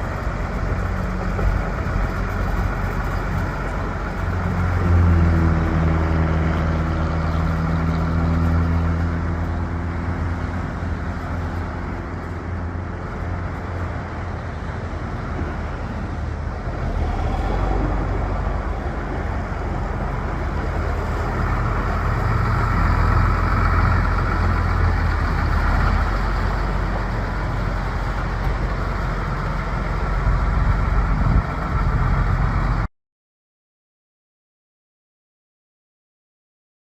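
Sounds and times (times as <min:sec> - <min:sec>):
tractor diesel engine running: 0:00.0 - 0:32.9.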